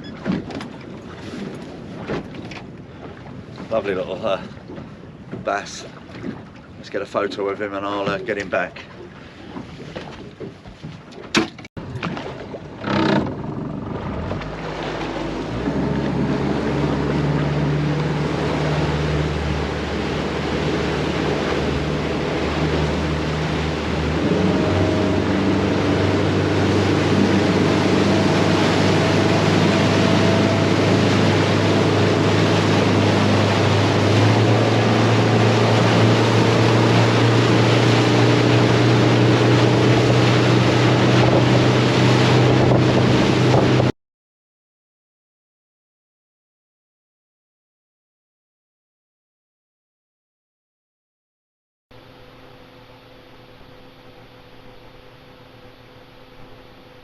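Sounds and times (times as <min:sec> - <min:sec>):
motorboat engine running: 0:00.0 - 0:43.9
rushing water and wind: 0:00.0 - 0:43.9.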